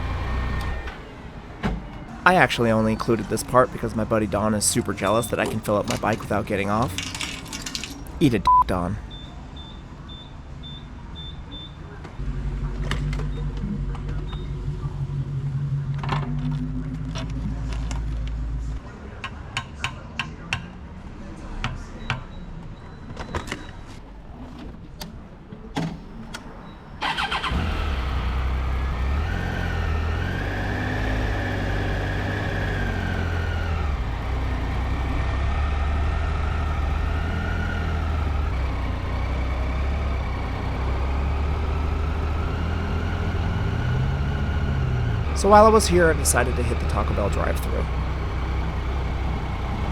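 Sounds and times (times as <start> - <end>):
motorcycle engine running: 27.0 - 45.4.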